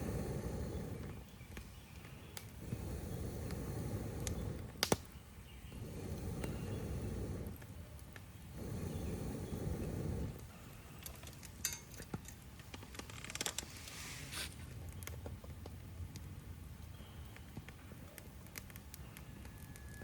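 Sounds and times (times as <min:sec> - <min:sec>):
wood fire crackling: 0:00.0 - 0:20.0
sharp pops: 0:04.2 - 0:05.2.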